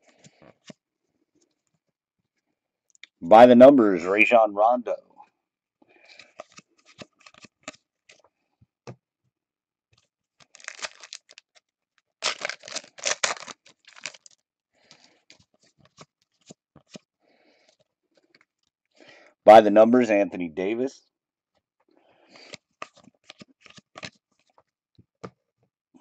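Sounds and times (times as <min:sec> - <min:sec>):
cards clicking: 0:06.1 - 0:07.8, 0:22.4 - 0:24.1
foil wrapper tearing and rustling: 0:10.4 - 0:11.6, 0:12.2 - 0:14.4.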